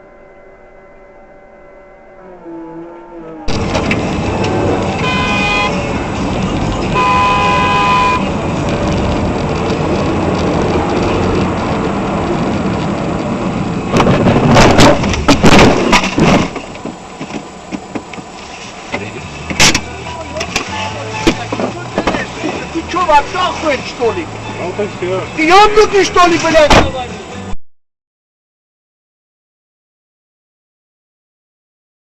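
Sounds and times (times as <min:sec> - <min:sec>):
road and engine noise: 0:00.0 - 0:27.6
car horn honking: 0:03.5 - 0:08.4, 0:20.5 - 0:21.6
vehicle collision bangs and crunching: 0:03.5 - 0:10.7, 0:13.8 - 0:18.3, 0:18.9 - 0:23.9, 0:25.6 - 0:27.1.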